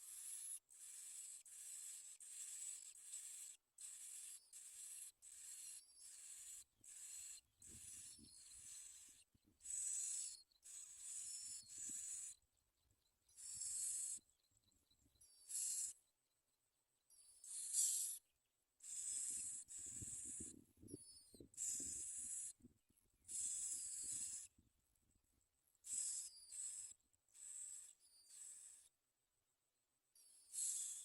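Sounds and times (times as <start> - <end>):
nestlings begging: 0.1 - 12.4, 13.4 - 14.2, 18.8 - 20.6, 21.2 - 22.6, 23.3 - 24.5.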